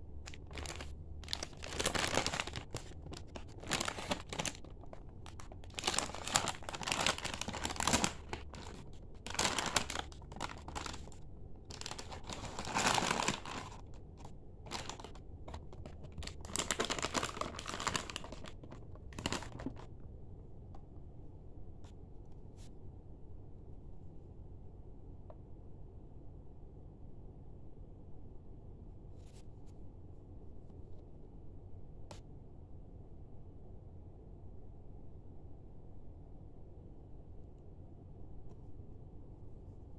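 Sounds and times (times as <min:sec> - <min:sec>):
plastic packets crinkling: 0:00.1 - 0:19.9.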